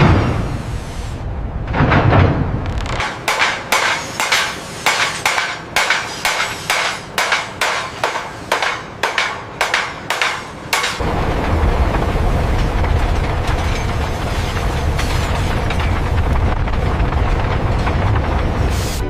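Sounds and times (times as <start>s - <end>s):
hammer striking metal: 3.0s - 11.0s.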